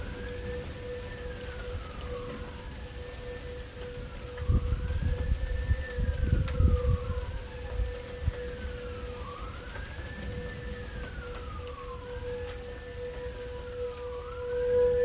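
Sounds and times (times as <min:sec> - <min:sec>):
rain and wind: 0:00.0 - 0:15.0
siren wailing: 0:00.0 - 0:15.0.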